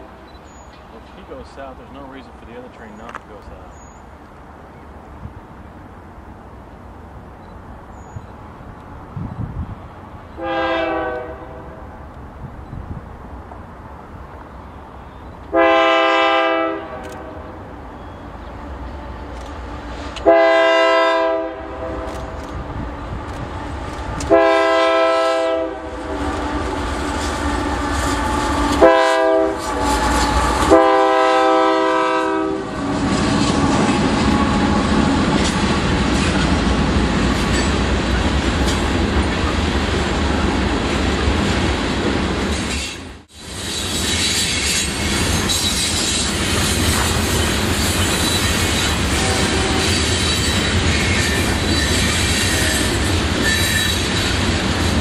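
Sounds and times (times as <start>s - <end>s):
train cars rumbling and clacking: 0.0s - 55.0s
locomotive air horn: 10.4s - 11.8s, 15.5s - 17.5s, 18.6s - 22.4s, 24.2s - 32.8s, 48.2s - 54.3s
wheel squeal: 43.6s - 49.0s, 49.6s - 54.4s.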